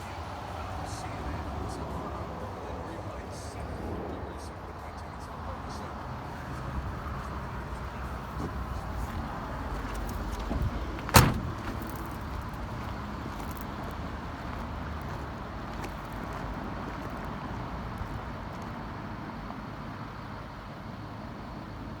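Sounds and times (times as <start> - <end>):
steady low rumble: 0.0 - 19.0
door slamming shut: 10.4 - 12.0.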